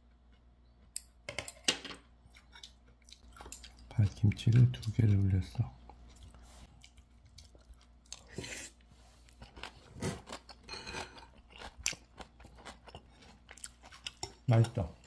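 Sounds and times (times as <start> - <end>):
person chewing crunchy food: 2.2 - 5.2, 5.9 - 14.5.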